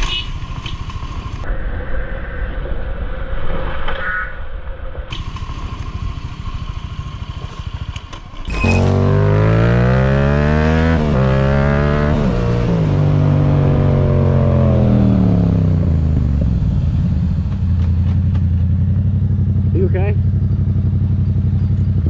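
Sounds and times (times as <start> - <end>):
motorcycle engine accelerating: 5.2 - 22.0.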